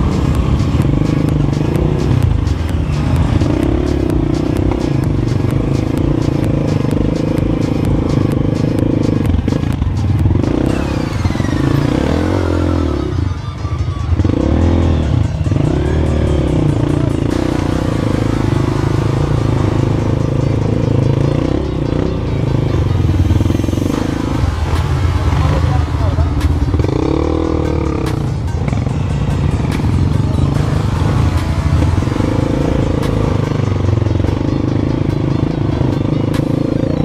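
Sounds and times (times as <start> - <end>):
background music: 0.0 - 37.0
motorcycle engine revving: 0.0 - 37.0.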